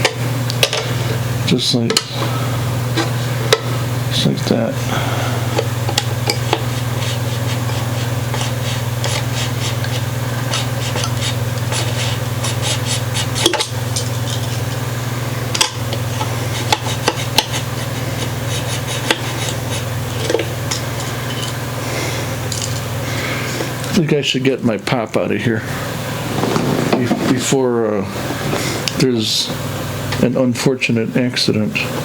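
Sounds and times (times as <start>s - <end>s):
steady low hum: 0.0s - 32.0s
hobby knife sawing wood: 6.4s - 13.7s, 16.3s - 19.9s.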